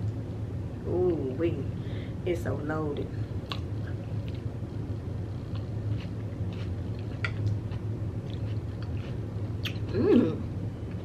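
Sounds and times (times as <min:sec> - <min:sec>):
steady low hum: 0:00.0 - 0:11.0
person chewing: 0:03.4 - 0:04.5, 0:05.3 - 0:10.2.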